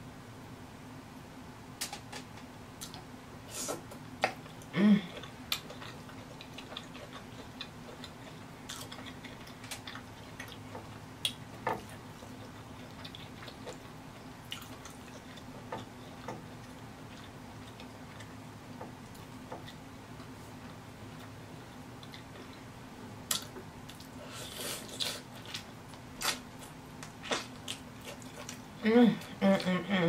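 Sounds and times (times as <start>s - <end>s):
person humming mm: 4.7s - 5.3s.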